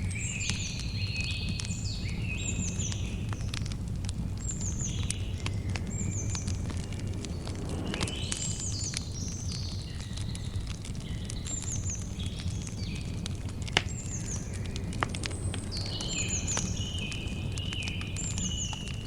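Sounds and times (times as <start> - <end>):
campfire crackling and popping: 0.0 - 19.0
birds chirping and whistling: 4.4 - 13.2, 13.9 - 19.0.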